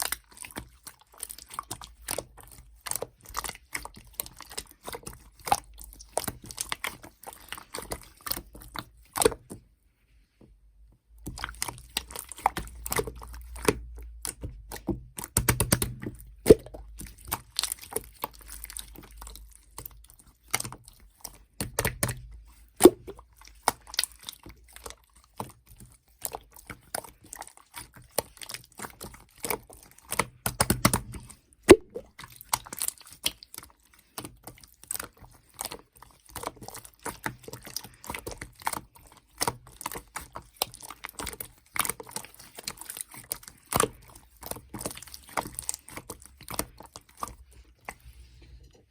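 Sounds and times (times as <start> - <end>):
slime squishing with wet pops: 0.0 - 48.9.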